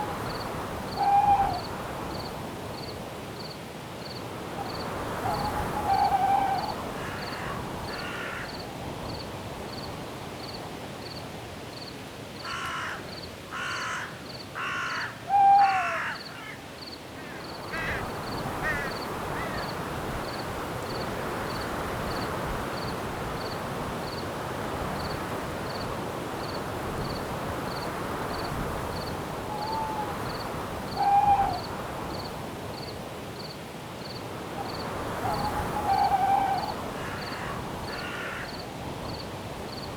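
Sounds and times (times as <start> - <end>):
cricket chirping: 0.0 - 11.2, 25.0 - 39.9
wind in trees: 0.0 - 39.9
bird cawing harshly: 12.5 - 16.6, 35.3 - 38.5.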